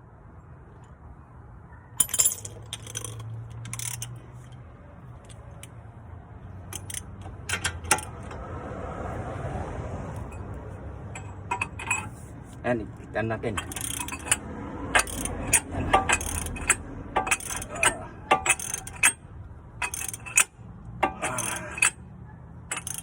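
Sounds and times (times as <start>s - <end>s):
metal tools clinking: 2.0s - 5.8s, 6.6s - 8.4s, 11.1s - 12.3s, 13.3s - 19.2s, 19.8s - 22.0s, 22.7s - 23.0s.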